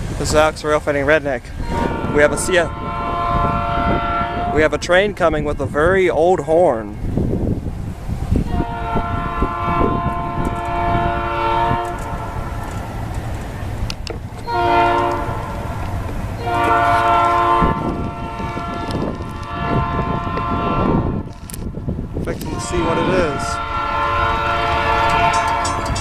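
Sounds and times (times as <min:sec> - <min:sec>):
train rumble: 0:00.0 - 0:26.0
locomotive air horn: 0:01.6 - 0:05.1, 0:08.4 - 0:12.9, 0:14.4 - 0:21.6, 0:22.4 - 0:26.0.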